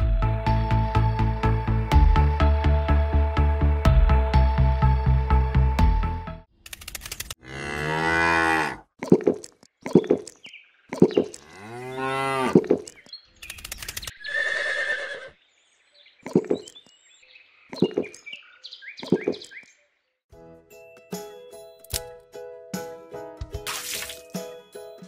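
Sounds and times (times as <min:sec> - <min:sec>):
cow mooing: 0:07.4 - 0:08.9, 0:11.4 - 0:12.6.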